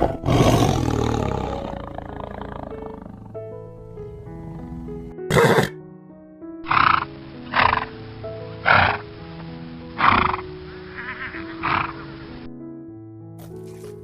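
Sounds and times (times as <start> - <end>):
background music: 0.0 - 14.0
horse neighing: 4.3 - 5.8, 10.0 - 12.3
quavering horse whinny: 5.3 - 5.8, 10.0 - 12.2.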